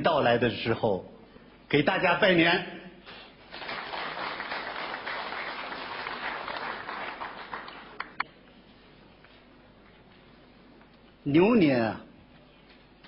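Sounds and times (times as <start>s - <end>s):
audience applauding: 3.4s - 8.2s
single claps: 3.6s - 8.3s.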